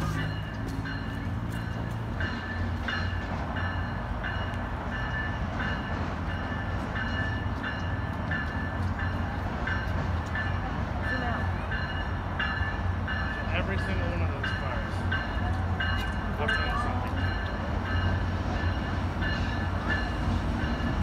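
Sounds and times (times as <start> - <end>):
train crossing steel bridge rumble: 0.0 - 21.0.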